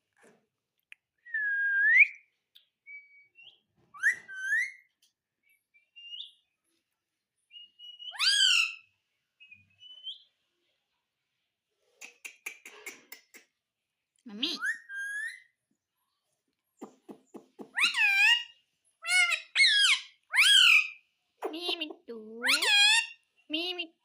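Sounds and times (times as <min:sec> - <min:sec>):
parrot whistling and chirping: 0:02.9 - 0:04.9, 0:07.5 - 0:10.3, 0:14.6 - 0:15.6, 0:17.3 - 0:21.0.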